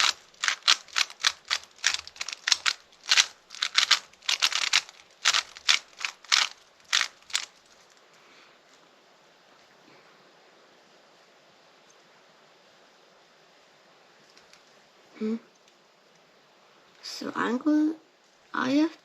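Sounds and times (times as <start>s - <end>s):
plastic puzzle cube clacking: 0.0s - 7.7s.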